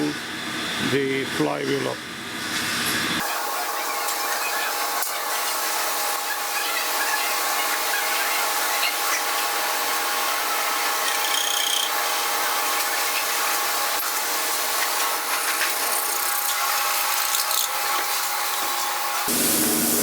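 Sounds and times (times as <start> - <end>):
electric drill whining: 10.2 - 12.5.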